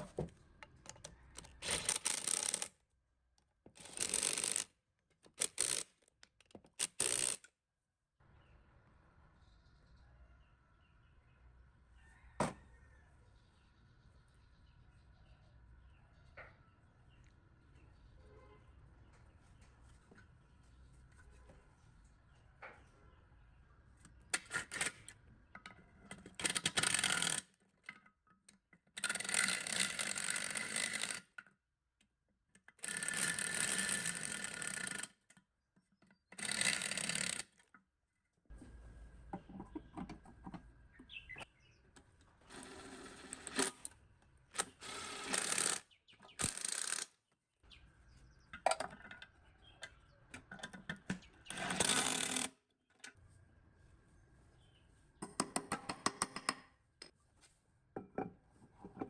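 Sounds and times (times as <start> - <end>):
faint handling sounds: 57.0 - 59.0.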